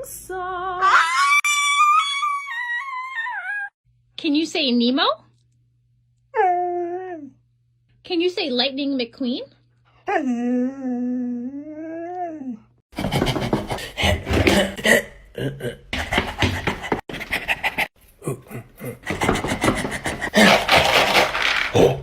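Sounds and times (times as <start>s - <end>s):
dog panting: 16.1s - 17.9s.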